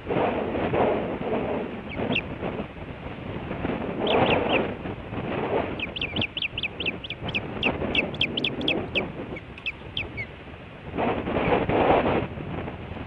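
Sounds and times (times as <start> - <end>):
wind rumble on microphone: 0.0 - 13.0
osprey whistled chirps: 5.8 - 10.3.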